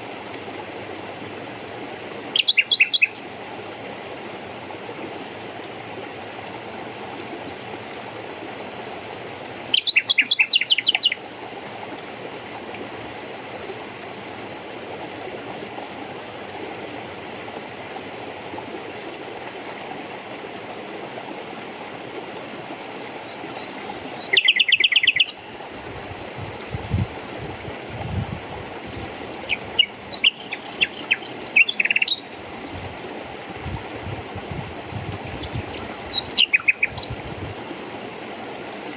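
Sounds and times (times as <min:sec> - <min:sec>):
running water: 0:00.0 - 0:38.9
songbird singing: 0:00.6 - 0:03.2, 0:07.6 - 0:11.2, 0:22.8 - 0:25.5, 0:29.2 - 0:32.8, 0:34.6 - 0:37.3.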